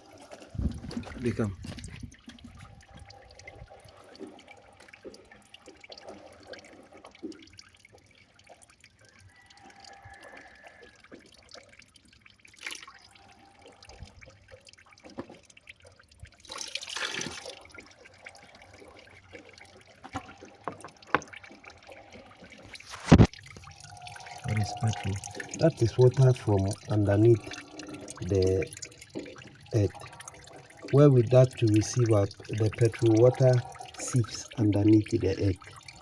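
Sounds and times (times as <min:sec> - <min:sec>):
liquid dripping and trickling: 0:00.0 - 0:36.0
liquid rushing: 0:19.9 - 0:36.0.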